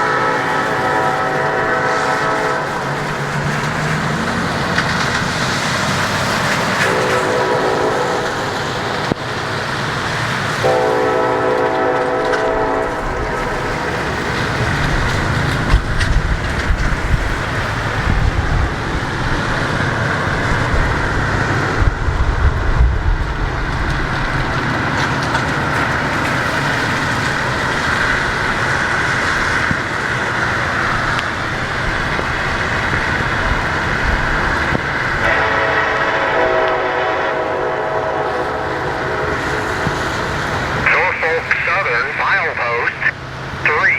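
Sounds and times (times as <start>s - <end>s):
train horn blast: 0.0s - 3.2s, 6.7s - 9.2s, 10.6s - 14.3s, 35.1s - 41.1s
diesel locomotives under throttle: 0.0s - 43.9s
train wheels rumbling on rails: 0.0s - 43.9s.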